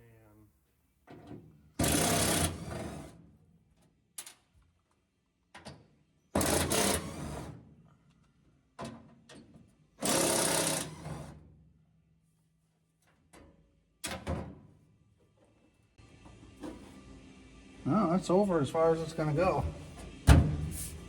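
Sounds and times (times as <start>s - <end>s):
power drill drilling into metal: 1.8s - 2.9s, 10.0s - 11.2s.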